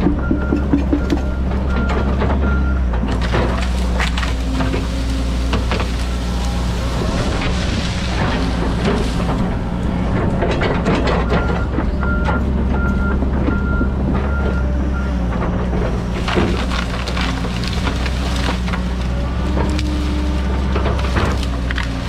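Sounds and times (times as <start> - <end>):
backup alarm beeping: 0.0 - 2.9, 11.2 - 15.2
excavator diesel engine running: 0.0 - 22.0
wood and brush cracking: 0.0 - 22.0.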